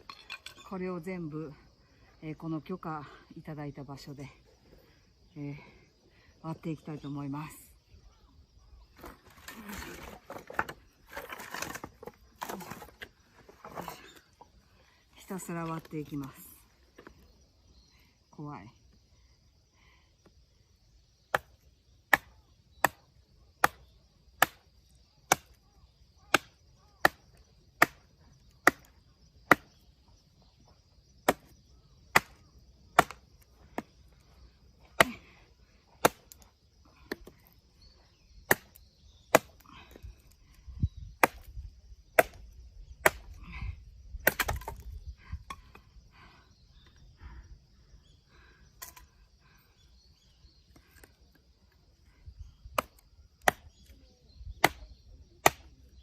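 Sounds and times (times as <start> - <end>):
wood handling rustling: 0.0 - 0.7, 9.0 - 14.4
hatchet chopping firewood: 9.0 - 13.0, 21.3 - 25.6, 26.2 - 29.8, 31.2 - 34.0, 35.0 - 35.3, 35.9 - 37.5, 38.4 - 40.4, 41.0 - 43.4, 44.1 - 45.8, 52.7 - 55.8.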